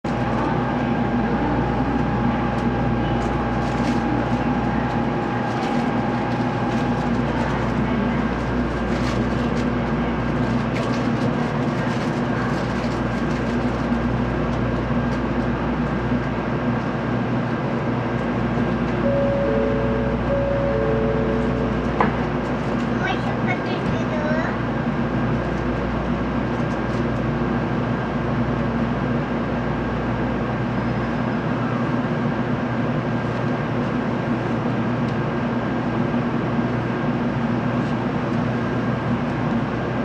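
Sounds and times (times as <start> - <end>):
train cabin hum: 0.0 - 30.8
two-note chime: 19.0 - 21.8
steady tone: 19.0 - 22.4.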